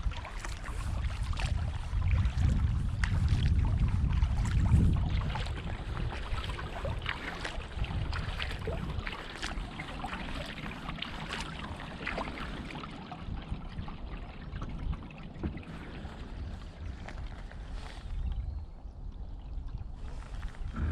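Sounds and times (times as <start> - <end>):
water splashing and dripping: 0.0 - 18.4
paddle dipping into water: 0.0 - 20.9
low rumble: 13.4 - 20.9.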